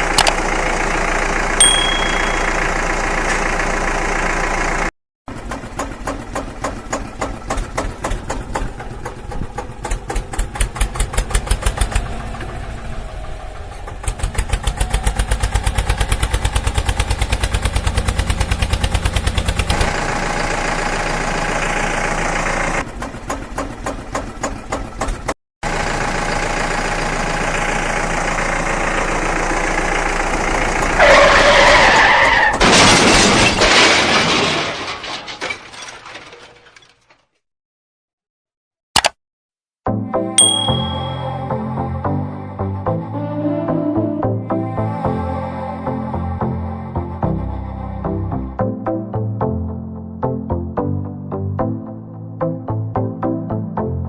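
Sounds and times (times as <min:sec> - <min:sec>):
tractor engine chugging: 0:00.0 - 0:32.6.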